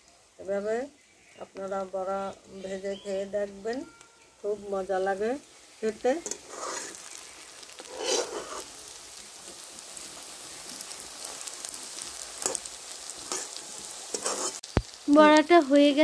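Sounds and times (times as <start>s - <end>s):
pakoras sizzling in hot oil: 0.0s - 16.0s
metal spatula scraping pan: 6.2s - 7.1s, 7.8s - 8.8s, 12.4s - 14.6s.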